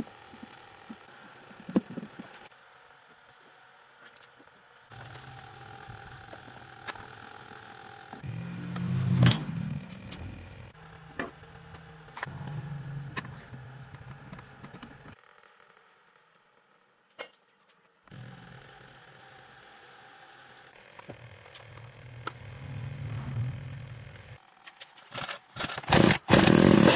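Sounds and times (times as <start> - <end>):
mini motorcycle engine revving: 4.9 - 15.8, 18.1 - 24.5, 25.1 - 26.9.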